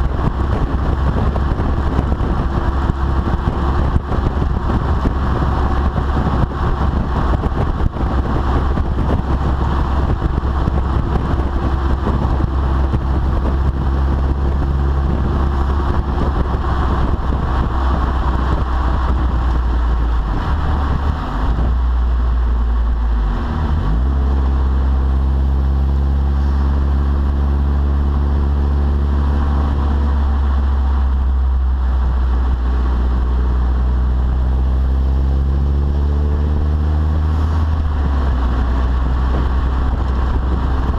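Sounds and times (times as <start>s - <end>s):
car exhaust drone: 0.0s - 40.9s.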